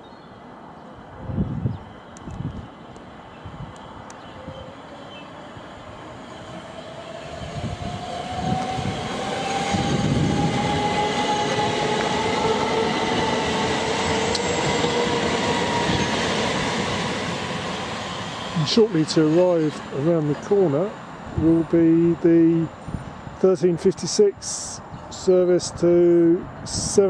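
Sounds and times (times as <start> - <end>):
train wheel rumble: 1.2 - 24.7
train traction motors whining: 3.7 - 23.6.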